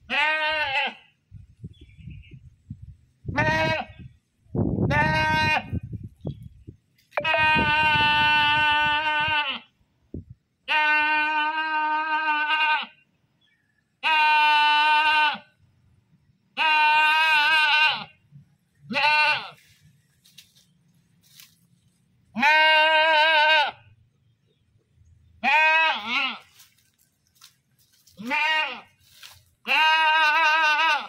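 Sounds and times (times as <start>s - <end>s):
goat bleating: 0.0s - 1.1s, 3.3s - 4.0s, 4.9s - 5.8s, 7.2s - 9.7s, 10.6s - 13.0s, 14.0s - 15.5s, 16.6s - 18.2s, 18.9s - 19.7s, 22.3s - 23.9s, 25.4s - 26.7s, 28.1s - 31.0s.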